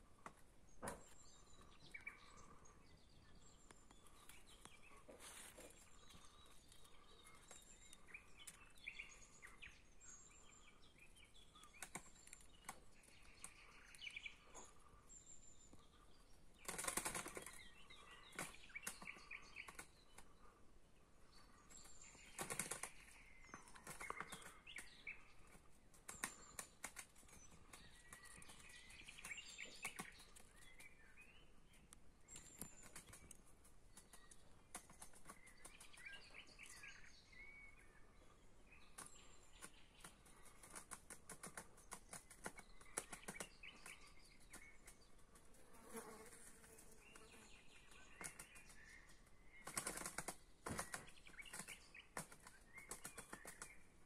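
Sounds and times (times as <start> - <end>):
birds chirping: 0.0 - 54.0
wings flapping: 16.6 - 17.6, 22.2 - 23.1, 49.6 - 53.7.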